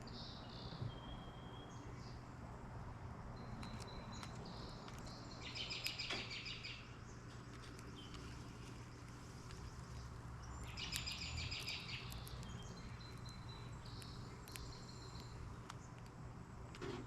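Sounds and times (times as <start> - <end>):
steady low hum: 0.0 - 17.0
sharp clicks: 3.4 - 6.5, 7.2 - 17.0
bird chattering trill: 10.6 - 16.0.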